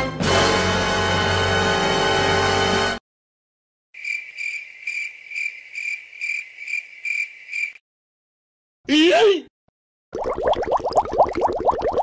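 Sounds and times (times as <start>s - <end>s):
cricket chirping: 4.0s - 7.8s
person shouting: 8.9s - 9.5s.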